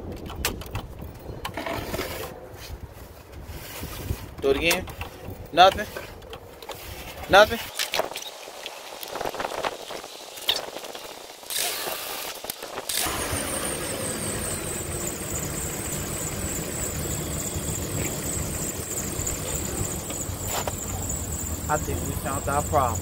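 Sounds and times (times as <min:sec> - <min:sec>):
thin high whine: 0:09.1 - 0:23.0
car engine cranking: 0:12.8 - 0:23.0
engine idling: 0:13.0 - 0:23.0.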